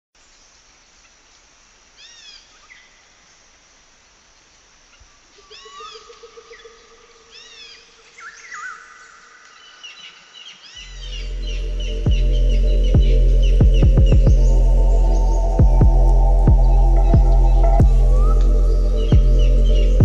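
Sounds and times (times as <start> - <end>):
steady nature hiss: 0.2 - 20.0
short arching bird calls: 4.9 - 20.0
held whistled tone: 10.8 - 20.0.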